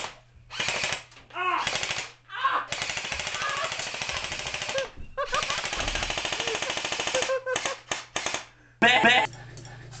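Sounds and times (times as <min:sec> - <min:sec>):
airsoft guns firing bursts: 0:01.6 - 0:08.5.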